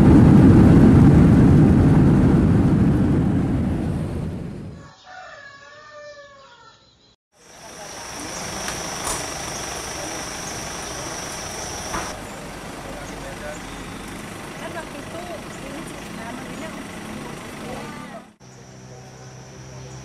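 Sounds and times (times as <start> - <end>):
airliner landing rumble: 0.0 - 4.8, 7.4 - 20.0
outdoor background noise: 0.0 - 20.0
rooster crowing: 4.8 - 6.9.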